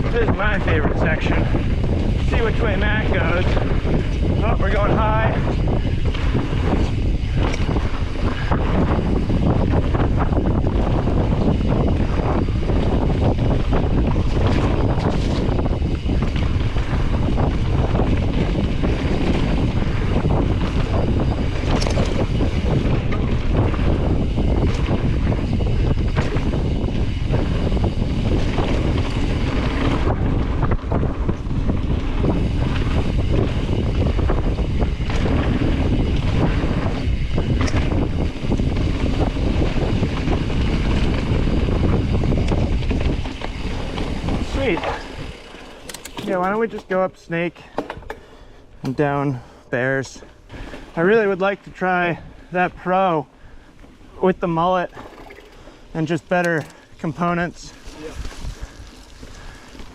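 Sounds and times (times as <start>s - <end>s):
bike tyres rumbling on dirt: 0.0s - 59.9s
wind buffeting microphone: 0.0s - 59.9s
bike knocks and rattles: 1.2s - 49.1s, 54.8s - 59.9s
bike clicks or knocks: 21.6s - 23.3s, 42.4s - 47.0s, 47.6s - 49.0s, 56.4s - 56.9s.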